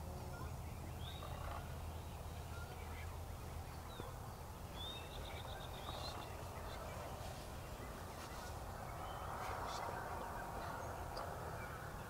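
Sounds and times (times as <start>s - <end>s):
outdoor background hiss: 0.0s - 12.0s
high songbird chirps: 0.2s - 12.0s
distant turkey calling: 0.3s - 12.0s.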